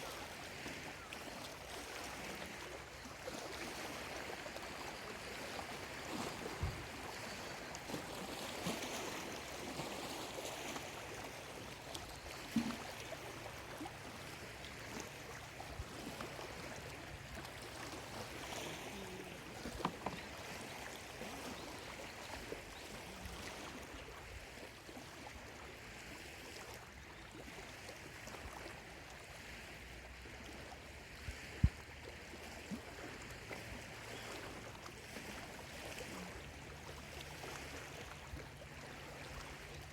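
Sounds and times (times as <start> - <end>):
lake waves lapping at shore: 0.0 - 39.9.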